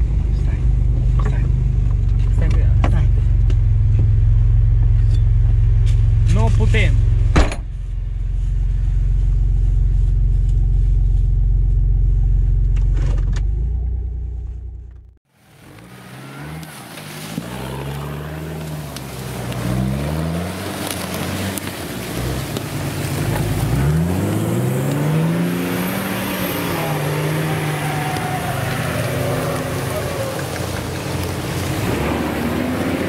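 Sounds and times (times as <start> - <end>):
engine idling with deep hum: 0.0 - 15.2
engine revving up and down: 8.3 - 33.0.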